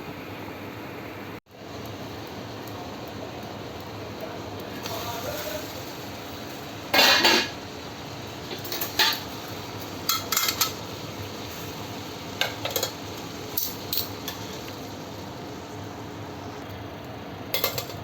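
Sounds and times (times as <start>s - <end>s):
utensils and dishes clattering: 6.9s - 7.6s, 8.5s - 9.3s, 10.1s - 10.8s, 12.4s - 13.0s, 17.5s - 18.0s.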